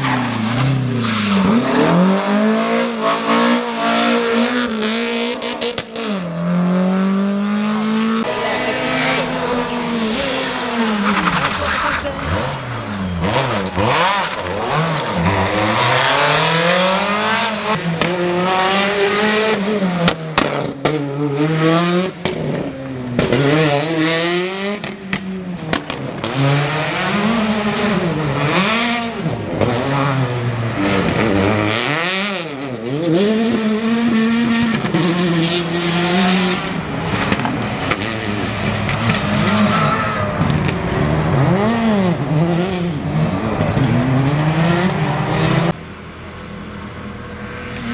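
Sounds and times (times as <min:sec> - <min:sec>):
rally car engines revving: 0:00.0 - 0:47.9
tyre squeal: 0:09.5 - 0:13.7, 0:39.2 - 0:40.4.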